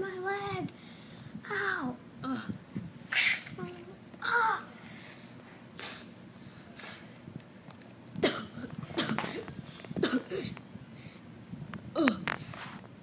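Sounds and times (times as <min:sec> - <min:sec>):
child groaning: 0:04.2 - 0:04.7
child making pained sounds: 0:04.2 - 0:04.7.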